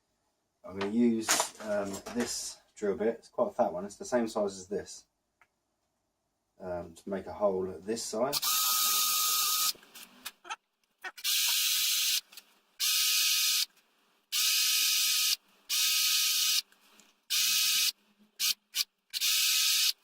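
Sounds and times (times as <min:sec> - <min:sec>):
electric drill boring into wood: 0:08.4 - 0:09.8, 0:11.2 - 0:12.2, 0:14.4 - 0:16.6, 0:17.3 - 0:17.9, 0:19.2 - 0:20.0.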